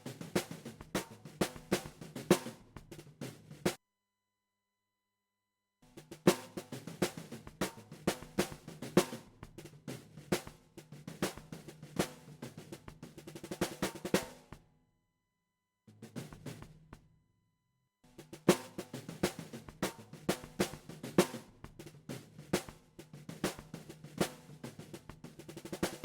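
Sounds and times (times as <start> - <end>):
drum kit groove: 0.0 - 3.8, 6.0 - 14.6, 18.1 - 26.0.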